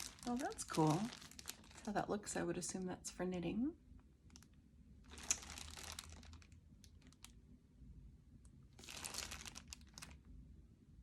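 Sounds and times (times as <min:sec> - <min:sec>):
yarn rustling and crinkling: 0:00.0 - 0:02.0, 0:05.0 - 0:07.4, 0:08.8 - 0:10.3.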